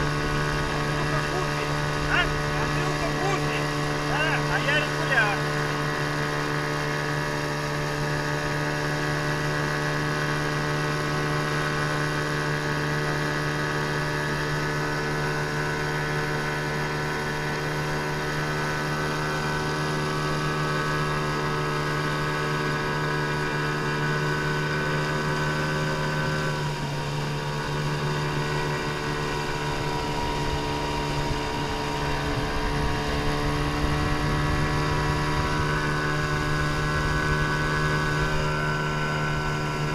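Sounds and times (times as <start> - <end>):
outboard motor droning: 0.0 - 39.9.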